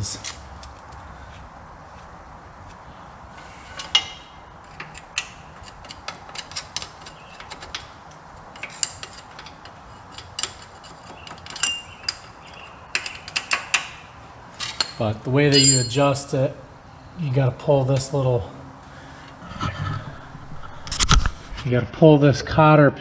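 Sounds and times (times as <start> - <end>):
metal tools clicking and clinking: 3.8 - 14.0, 14.6 - 16.3.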